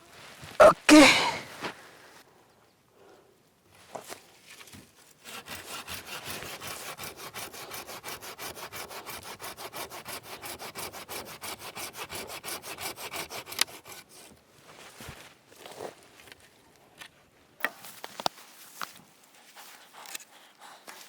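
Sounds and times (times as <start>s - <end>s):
hand saw cutting wood: 5.1s - 14.4s, 19.3s - 21.0s.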